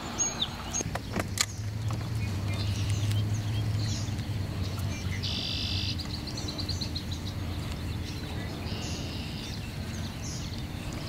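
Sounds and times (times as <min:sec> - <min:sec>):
small birds chirping: 0:00.0 - 0:11.0
steady low hum: 0:00.0 - 0:11.0
buzzy bird trill: 0:01.5 - 0:11.0.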